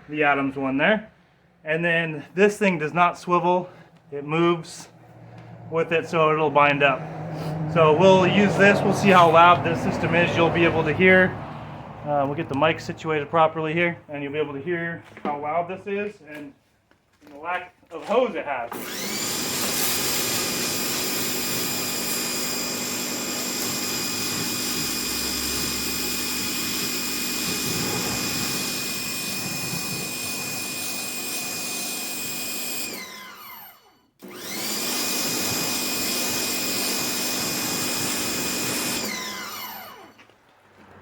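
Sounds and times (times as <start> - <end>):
pressure washer motor whine: 5.3 - 11.2, 18.7 - 40.4.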